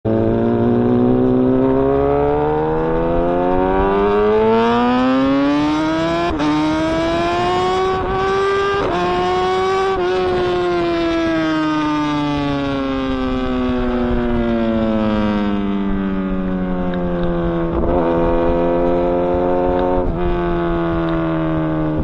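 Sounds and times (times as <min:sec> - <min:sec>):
motorcycle engine accelerating: 0:00.1 - 0:22.0.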